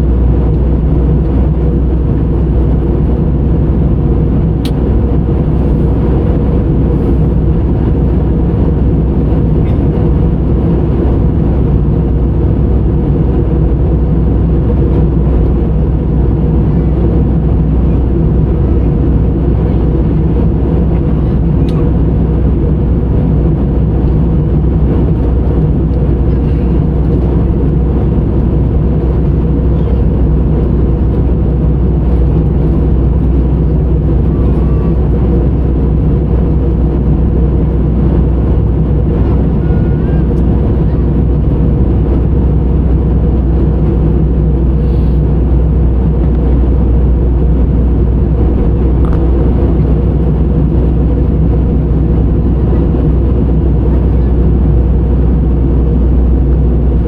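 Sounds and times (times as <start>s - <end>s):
rushing air: 0.0s - 26.2s, 26.8s - 57.0s
jet engines droning: 0.0s - 57.0s.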